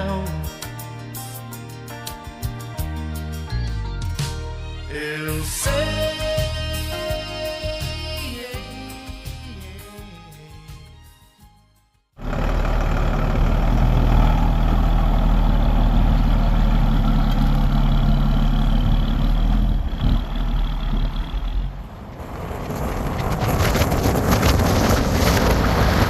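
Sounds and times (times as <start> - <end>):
road and wind noise: 12.2 - 26.0
vehicle engine running: 12.2 - 26.0.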